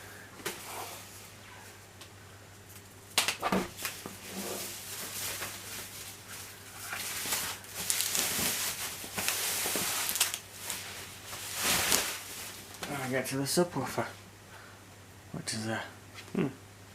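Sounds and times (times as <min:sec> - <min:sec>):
packing material rustling: 0:03.7 - 0:13.3.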